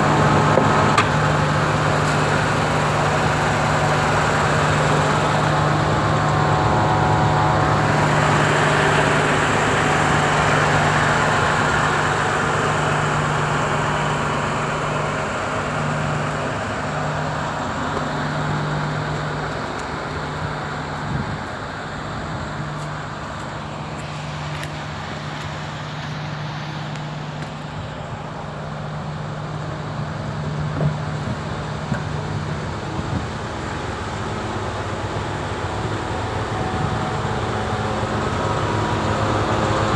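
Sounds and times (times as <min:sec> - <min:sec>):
diesel truck engine running: 0:00.0 - 0:39.9.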